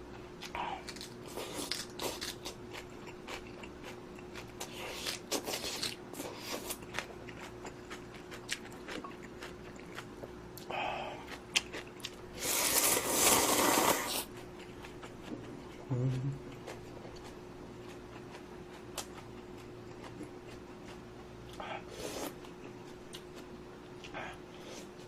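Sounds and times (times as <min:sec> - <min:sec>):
faint steady hum: 0:00.0 - 0:25.0
chewing with wet mouth clicks: 0:00.4 - 0:12.2, 0:14.3 - 0:21.6
slurping noodles: 0:12.4 - 0:14.3.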